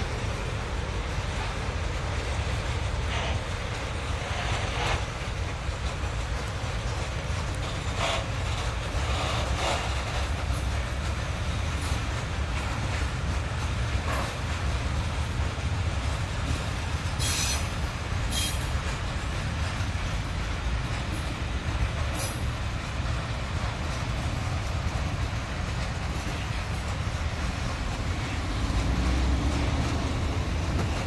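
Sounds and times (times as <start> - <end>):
freight train rumbling past: 0.0 - 31.0
high wheel squeals: 17.2 - 18.7.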